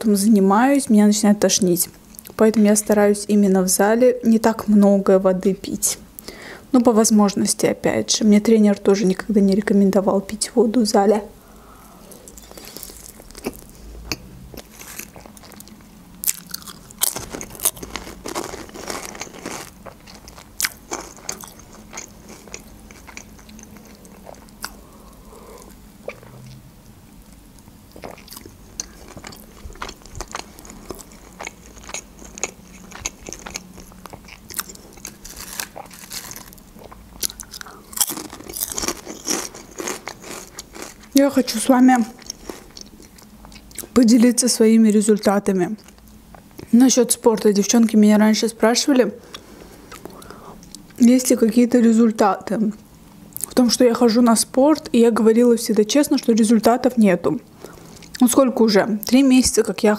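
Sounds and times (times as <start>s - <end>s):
person chewing food: 11.5s - 26.6s, 27.3s - 41.1s, 42.2s - 43.9s, 57.6s - 58.2s.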